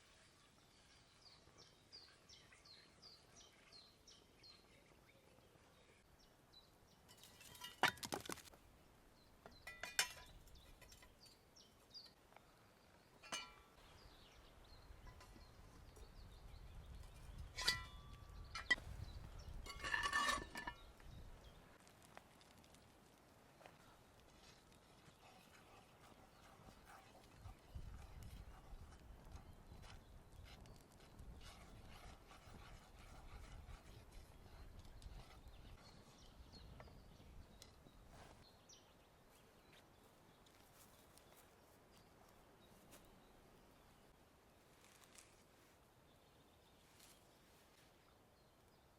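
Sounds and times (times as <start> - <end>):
faint riverside ambience: 0.0 - 48.9
cookware and utensils clinking: 9.6 - 11.1, 17.5 - 18.8, 19.6 - 20.9.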